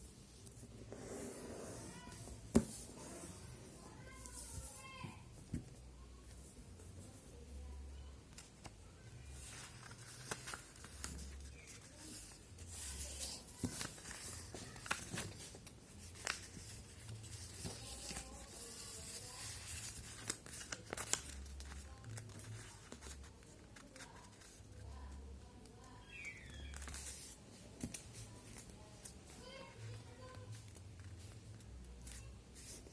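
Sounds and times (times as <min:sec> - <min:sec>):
paper rustling and crinkling: 0:08.3 - 0:25.0, 0:26.6 - 0:32.9.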